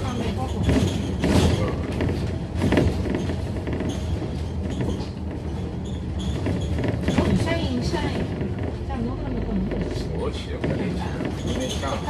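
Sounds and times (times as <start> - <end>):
bus diesel engine rumbling: 0.0 - 12.0
knocks and rattles: 0.2 - 12.0.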